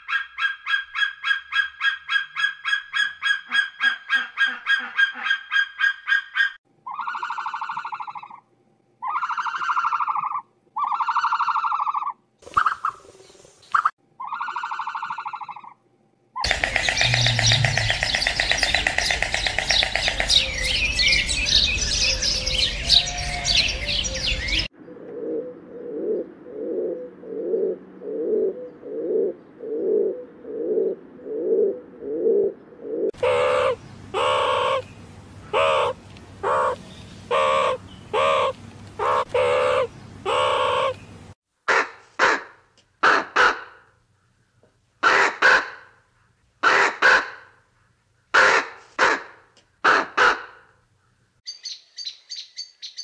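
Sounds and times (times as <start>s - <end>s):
bird calls: 16.4s - 24.7s, 33.2s - 41.2s, 51.0s - 53.0s.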